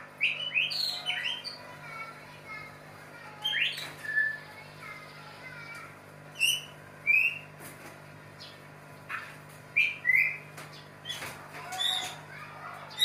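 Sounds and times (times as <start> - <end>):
bird chirping calls: 0.2 - 1.8, 3.4 - 4.5, 6.3 - 7.5, 8.4 - 13.0.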